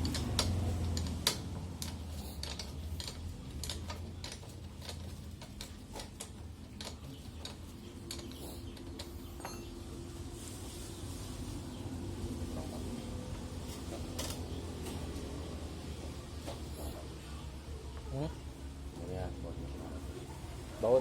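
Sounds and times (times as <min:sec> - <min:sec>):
sharp clicks and ticks: 0:00.0 - 0:09.6.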